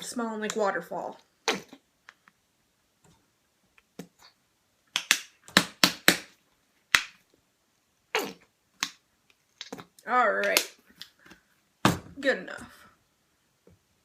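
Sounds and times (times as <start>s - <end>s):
plastic bottle squeezed snaps and splats: 4.9s - 6.3s.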